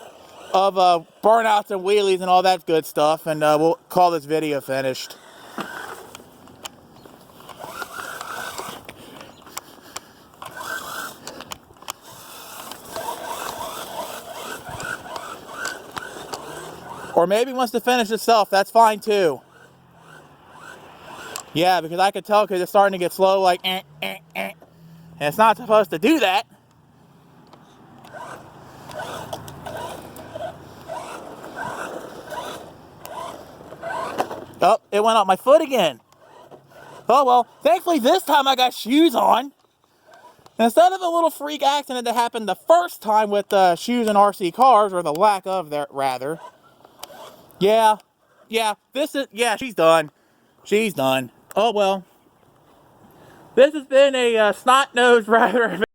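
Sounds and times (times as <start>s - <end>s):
electric motor and gears whining: 0.0s - 41.2s, 46.2s - 48.0s
small clicks: 5.5s - 17.2s, 19.0s - 21.6s, 27.4s - 34.6s.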